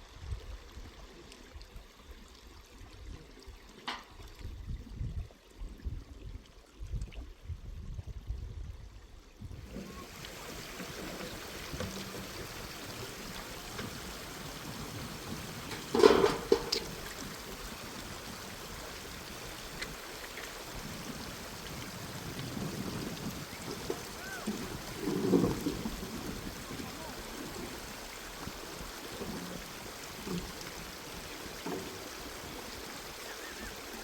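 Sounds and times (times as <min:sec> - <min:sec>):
stream water running: 0:00.0 - 0:34.0.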